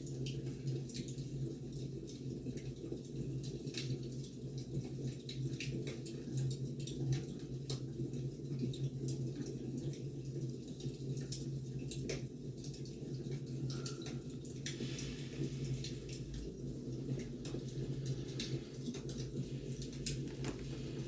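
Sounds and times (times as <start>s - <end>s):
wood fire crackling: 14.0s - 21.0s
brief rustle: 20.0s - 21.0s.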